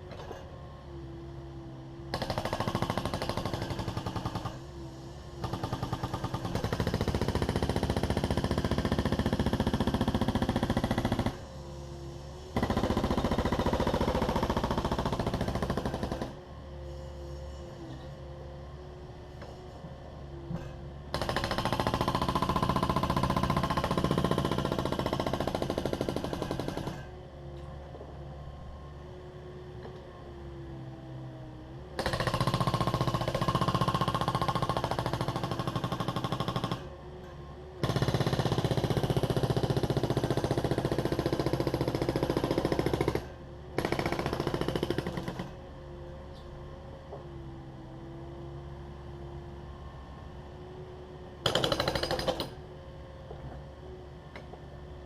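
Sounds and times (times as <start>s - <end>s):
hydraulic breaker hammering concrete: 2.1s - 4.6s, 5.4s - 11.4s, 12.6s - 16.4s, 20.6s - 27.1s, 32.0s - 36.9s, 37.8s - 45.6s, 51.4s - 52.6s.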